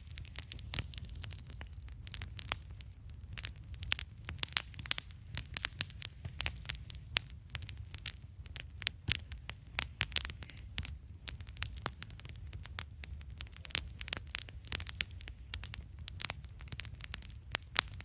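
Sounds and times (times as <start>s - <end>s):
campfire crackling: 0.0s - 18.0s.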